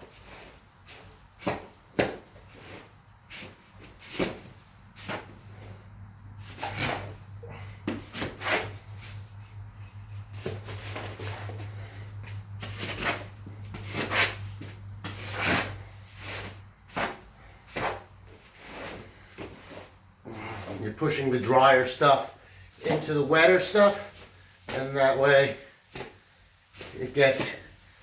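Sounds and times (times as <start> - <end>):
hoe scraping mortar in tub: 6.4 - 9.2, 10.3 - 20.9.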